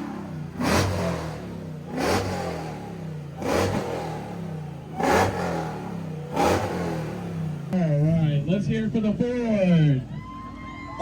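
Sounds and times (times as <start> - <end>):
engine idling and revving: 0.0 - 9.8.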